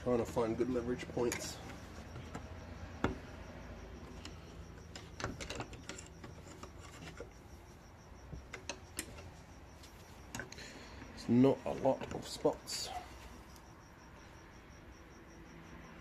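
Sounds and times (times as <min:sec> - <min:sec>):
light rubbing: 0:04.0 - 0:10.5
metal tool scraping brake caliper: 0:04.1 - 0:07.5.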